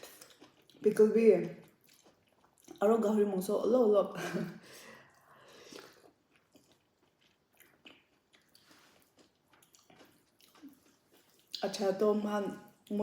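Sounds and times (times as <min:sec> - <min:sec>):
person chewing: 0:00.0 - 0:03.0, 0:04.7 - 0:11.8.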